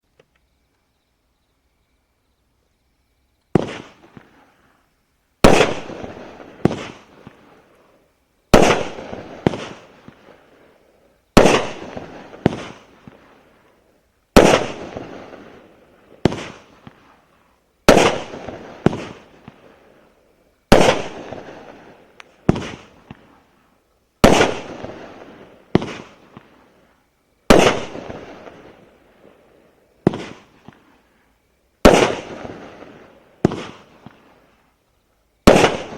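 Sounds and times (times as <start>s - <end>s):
fireworks bangs: 3.5s - 4.6s, 5.4s - 7.8s, 8.5s - 10.7s, 11.4s - 13.5s, 14.4s - 17.3s, 17.9s - 19.9s, 20.7s - 23.6s, 24.2s - 26.8s, 27.5s - 31.0s, 31.8s - 34.6s, 35.4s - 35.9s.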